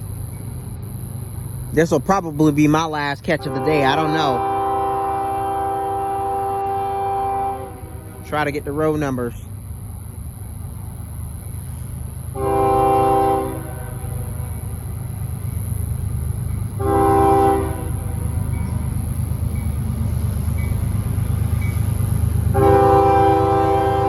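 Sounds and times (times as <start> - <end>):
diesel locomotive rumble: 0.0 - 24.0
locomotive air horn blasts: 3.2 - 9.3, 12.3 - 15.8, 16.6 - 20.3, 22.5 - 24.0.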